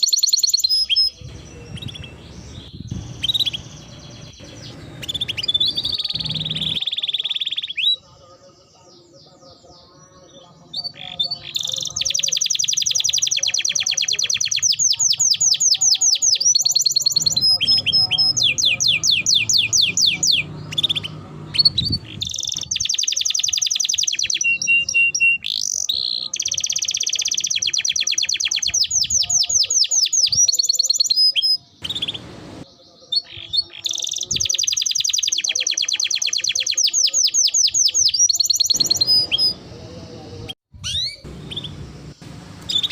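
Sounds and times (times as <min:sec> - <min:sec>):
canary singing trills: 0:00.0 - 0:42.9.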